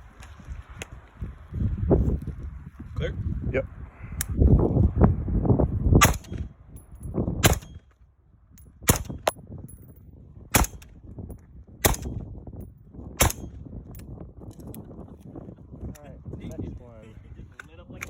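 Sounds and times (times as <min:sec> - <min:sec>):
suppressed rifle shots: 0:06.0 - 0:06.5, 0:07.4 - 0:07.8, 0:08.9 - 0:09.3, 0:10.5 - 0:10.9, 0:11.8 - 0:12.2, 0:13.2 - 0:13.5.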